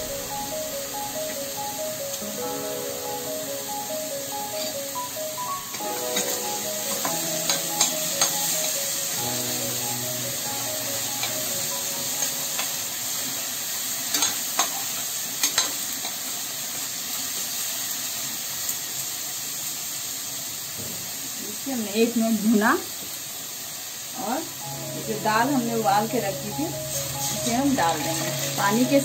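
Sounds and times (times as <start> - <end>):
vegetables sizzling in a pan: 0.0 - 29.0
spoon scraping a metal pan: 26.9 - 28.8.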